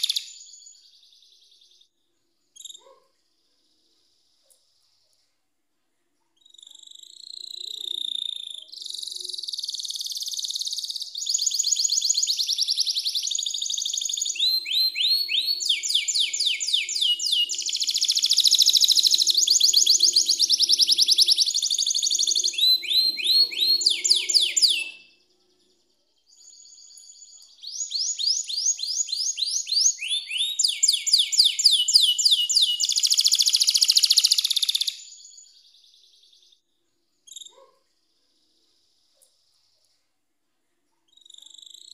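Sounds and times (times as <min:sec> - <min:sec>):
canary singing trills: 0:00.0 - 0:01.9, 0:06.3 - 0:36.6.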